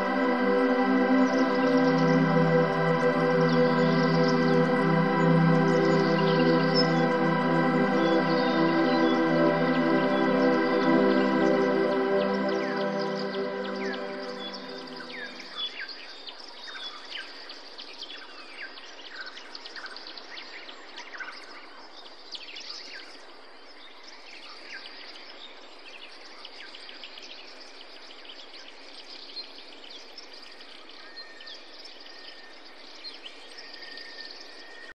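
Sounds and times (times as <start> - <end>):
background hiss: 0.0 - 15.9
small birds chirping: 0.0 - 15.9.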